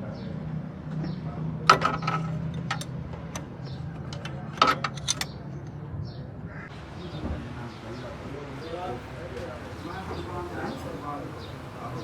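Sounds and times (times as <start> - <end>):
metal tools clinking: 1.7 - 5.4.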